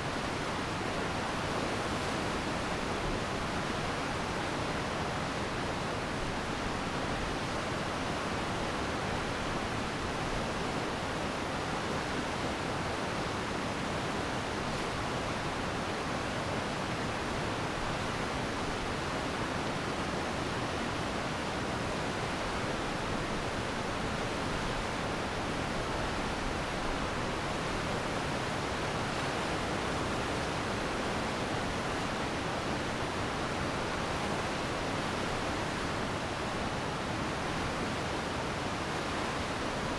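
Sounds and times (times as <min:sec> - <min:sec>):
stream rushing: 0:16.8 - 0:39.9.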